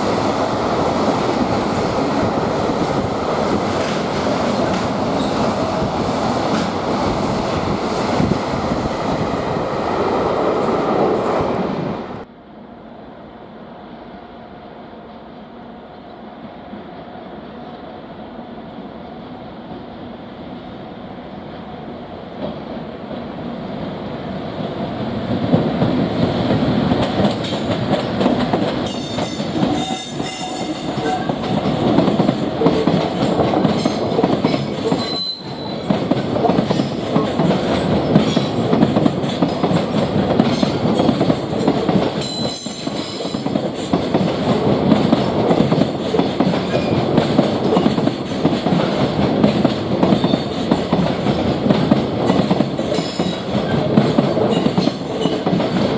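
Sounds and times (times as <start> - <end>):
train wheels clattering over rails: 0.0 - 11.4, 24.7 - 55.9.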